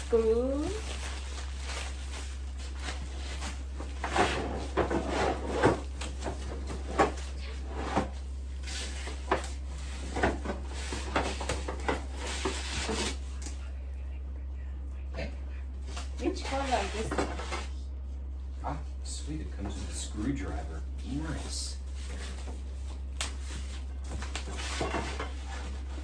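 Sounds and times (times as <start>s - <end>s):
parts and packaging knocking and rustling: 0.0s - 13.3s, 21.4s - 26.0s
steady low hum: 0.0s - 26.0s.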